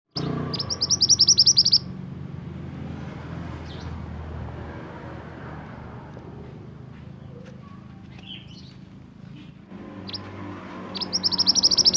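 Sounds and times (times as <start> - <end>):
bird chirping: 0.1 - 2.0, 3.6 - 4.0, 7.1 - 8.8, 9.8 - 11.9.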